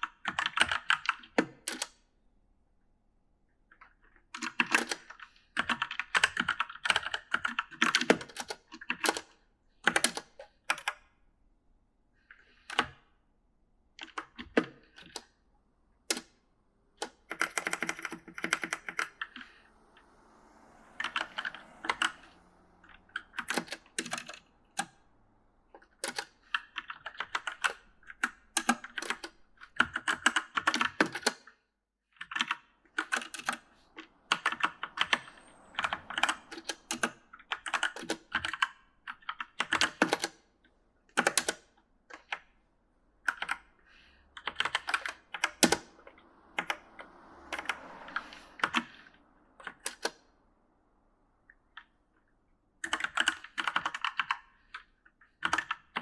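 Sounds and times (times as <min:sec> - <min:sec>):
mechanical keyboard typing: 0:04.4 - 0:09.2, 0:17.0 - 0:19.6, 0:23.2 - 0:25.0, 0:25.8 - 0:31.4, 0:32.2 - 0:33.6, 0:35.8 - 0:40.4, 0:43.2 - 0:43.6, 0:44.4 - 0:45.9, 0:52.8 - 0:54.8, 0:55.4 - 0:56.0.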